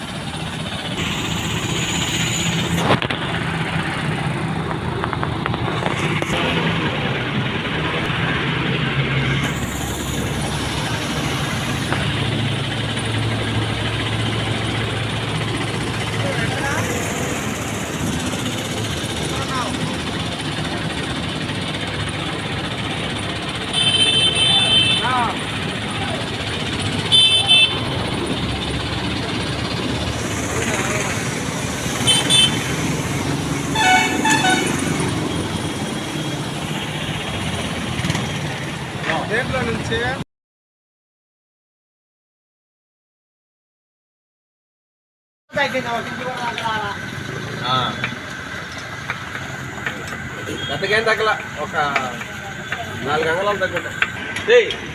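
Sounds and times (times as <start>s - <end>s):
steady rushing noise: 0.0s - 23.7s, 25.1s - 40.2s
road traffic noise: 0.0s - 40.2s, 45.5s - 54.9s
vehicle horn honking: 23.7s - 25.3s, 27.0s - 27.9s, 32.0s - 32.7s, 33.7s - 34.9s, 50.5s - 50.9s.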